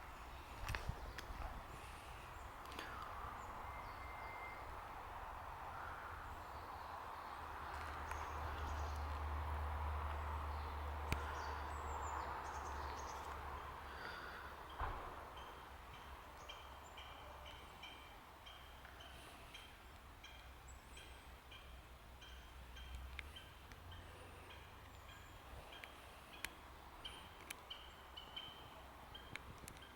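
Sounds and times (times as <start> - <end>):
bird chirps: 2.3 - 4.7.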